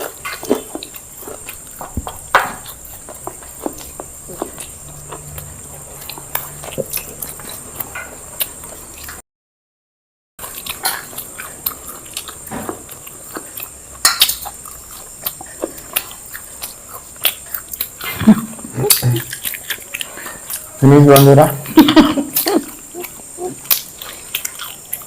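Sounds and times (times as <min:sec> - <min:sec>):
wet chewing and lip smacks: 0:00.0 - 0:09.2, 0:10.4 - 0:25.0.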